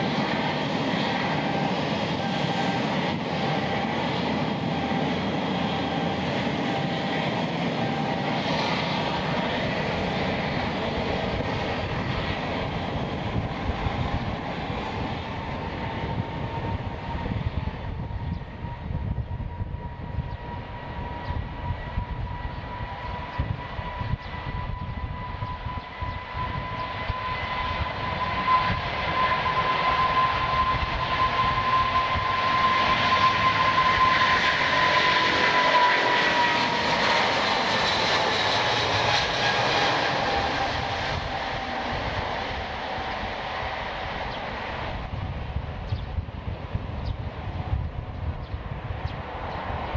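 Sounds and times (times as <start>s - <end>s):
jet engines passing: 0.0s - 49.9s.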